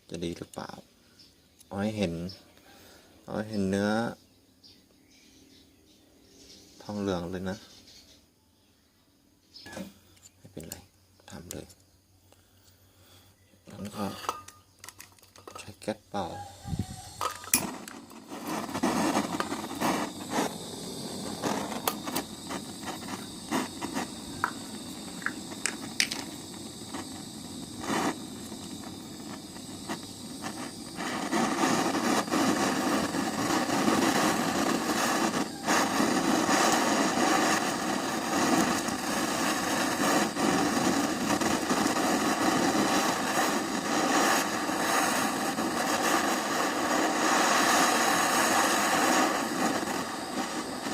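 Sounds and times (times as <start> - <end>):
blowtorch flame hissing: 13.8 - 14.4, 16.2 - 50.9.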